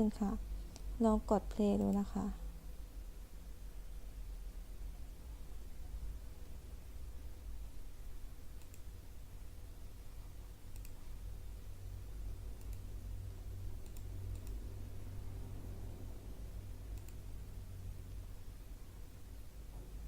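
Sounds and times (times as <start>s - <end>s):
low steady hum: 0.0s - 20.0s
computer mouse clicks: 1.6s - 2.1s, 8.5s - 8.9s, 10.7s - 11.1s, 12.5s - 12.9s, 13.8s - 14.8s, 16.9s - 17.3s.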